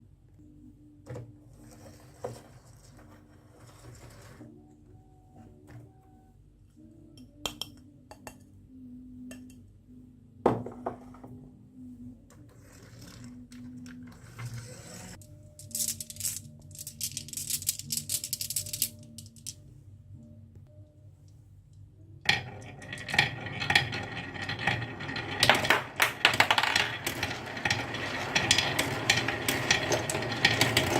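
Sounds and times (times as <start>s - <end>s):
soft background music: 0.0s - 30.9s
marbles clattering down a track: 14.0s - 19.6s, 22.3s - 30.9s.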